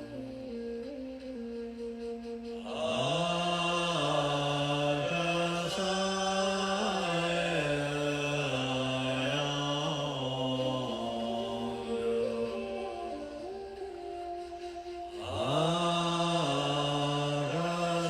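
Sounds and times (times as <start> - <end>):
man chanting melodically: 0.0 - 18.0.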